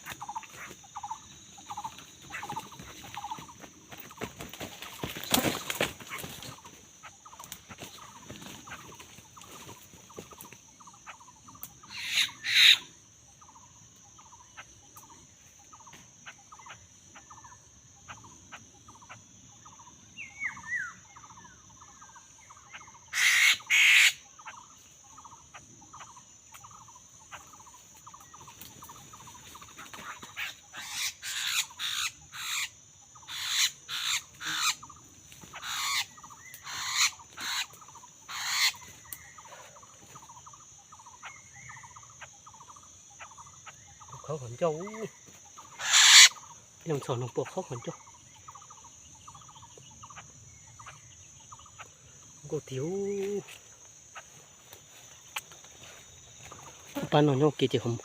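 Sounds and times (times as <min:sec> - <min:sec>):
high insect drone: 0:00.0 - 0:58.0
bird repeating short call: 0:45.7 - 0:46.4.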